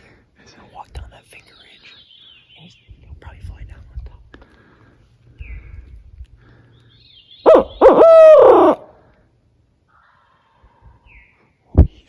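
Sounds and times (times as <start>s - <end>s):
owl call hoots: 7.4s - 9.0s.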